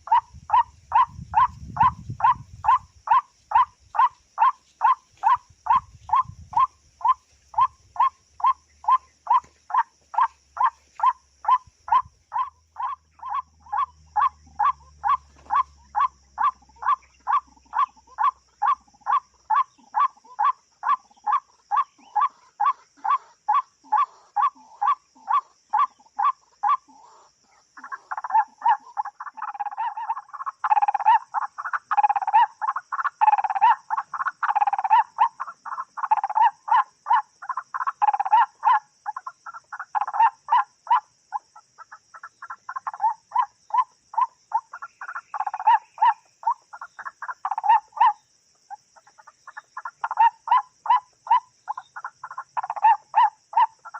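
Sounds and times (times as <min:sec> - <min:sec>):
high insect drone: 0:00.0 - 0:53.9
waterhen croaking calls: 0:00.0 - 0:53.9.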